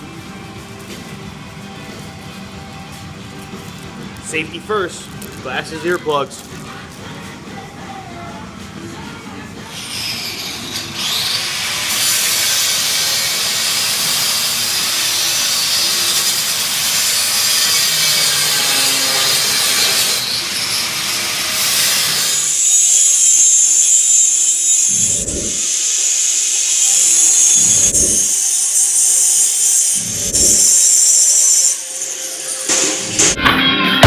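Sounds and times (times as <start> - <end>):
faint background music: 0.0 - 12.0
angle grinder grinding steel: 9.7 - 32.8.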